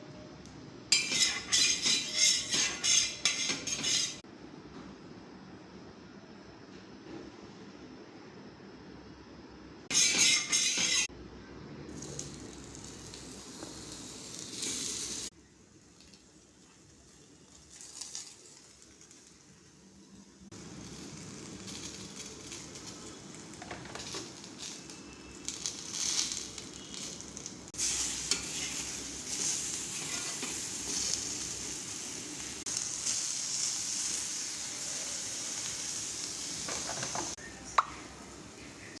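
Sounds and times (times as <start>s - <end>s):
food sizzling in hot oil: 0.9s - 4.2s, 9.9s - 11.1s, 11.9s - 15.3s, 20.5s - 37.4s.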